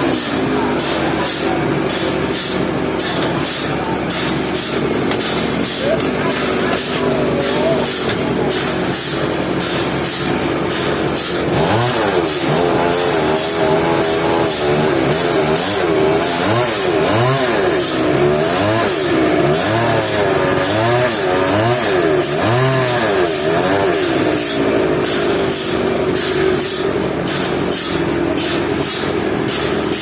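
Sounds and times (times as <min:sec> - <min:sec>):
small petrol engine revving: 0:00.0 - 0:30.0.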